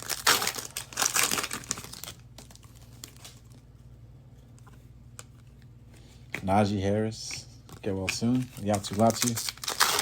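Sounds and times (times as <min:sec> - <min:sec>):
foil wrapper crinkling: 0:00.0 - 0:03.6, 0:07.8 - 0:10.0
steady low hum: 0:00.0 - 0:08.8.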